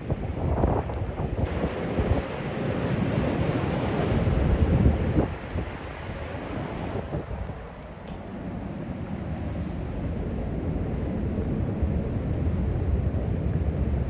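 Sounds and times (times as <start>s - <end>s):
surf: 0.0s - 7.8s
wind buffeting microphone: 0.0s - 14.0s.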